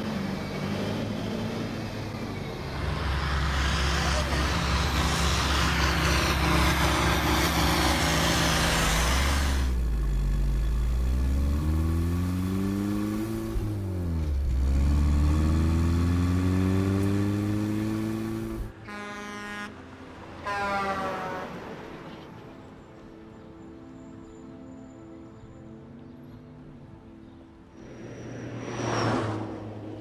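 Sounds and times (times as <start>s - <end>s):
engine revving: 0.0s - 18.7s.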